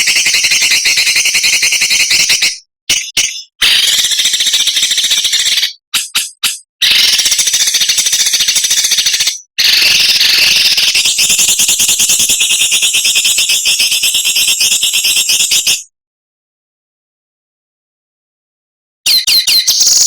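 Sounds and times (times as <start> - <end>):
songbird rattling chatter: 0.2 - 11.6.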